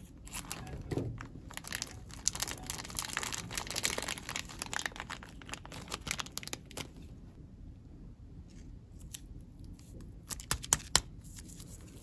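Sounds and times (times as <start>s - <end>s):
plastic bag crinkling: 0.3s - 7.2s.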